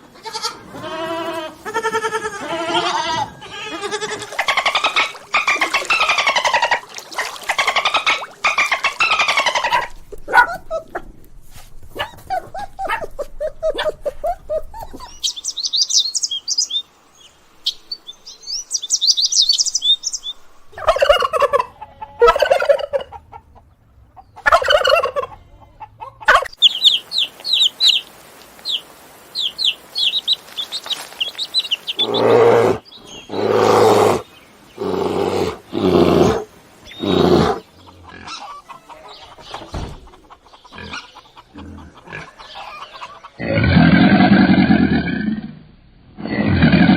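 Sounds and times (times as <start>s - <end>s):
poultry calling: 0.2s - 11.0s, 20.8s - 23.5s, 24.4s - 44.3s
chicks cheeping: 3.8s - 9.9s, 26.0s - 33.4s.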